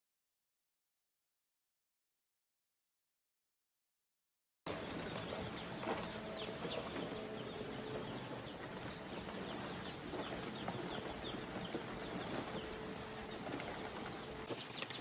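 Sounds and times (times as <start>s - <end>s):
chickens calling: 4.7s - 15.0s
faint steady hum: 4.7s - 15.0s.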